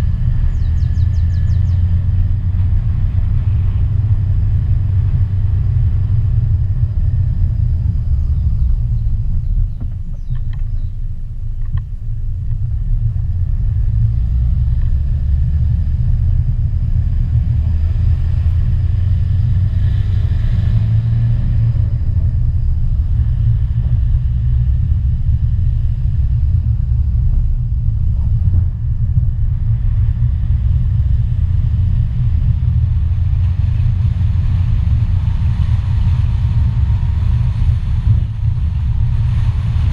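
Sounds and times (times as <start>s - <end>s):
car engine and road noise: 0.0s - 39.9s
faint clicks: 9.8s - 10.8s.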